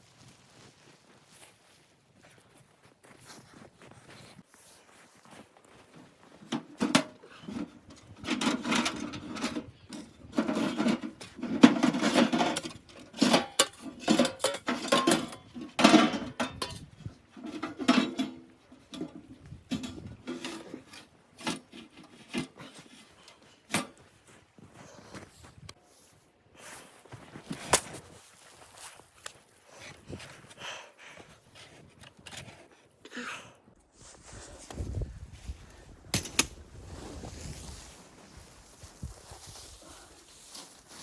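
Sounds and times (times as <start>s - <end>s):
knocks and clatter of handling: 6.4s - 24.0s.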